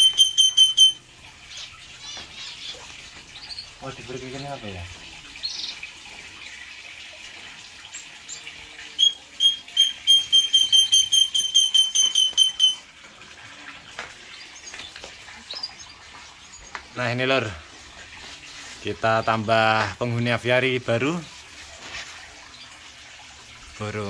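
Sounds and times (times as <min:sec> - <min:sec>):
bird whistling high notes: 0:09.0 - 0:12.8.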